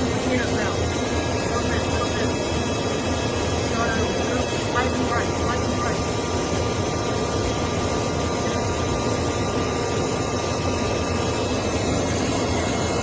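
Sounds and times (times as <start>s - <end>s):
aircraft engine rush: 0.0s - 13.0s.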